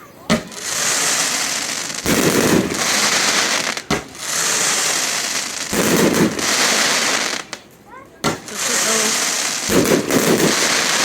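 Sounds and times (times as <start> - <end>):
fireworks crackling: 0.0 - 11.0
firework bang: 0.2 - 7.5, 8.2 - 11.0.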